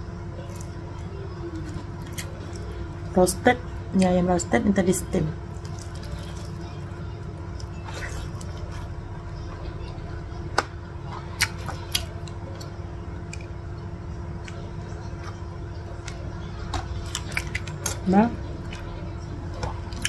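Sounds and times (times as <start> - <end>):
steady low hum: 0.0 - 20.0
close chewing and mouth sounds: 0.4 - 3.0, 5.5 - 9.1, 11.1 - 20.0.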